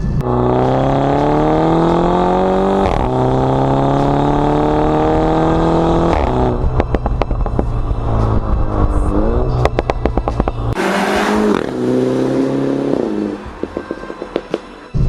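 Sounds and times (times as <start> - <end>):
car engine accelerating: 0.0 - 14.9
exhaust pops and bangs: 6.1 - 8.7, 9.5 - 10.8.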